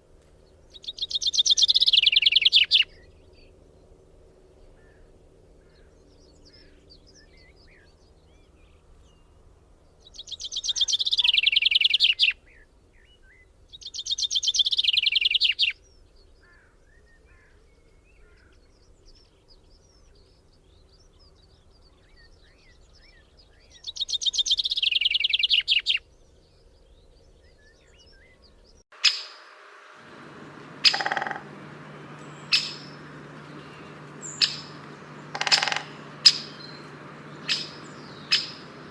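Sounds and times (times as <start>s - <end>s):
songbird trilling: 0.8s - 3.0s, 29.0s - 38.9s
faint bird chirps: 26.6s - 38.9s.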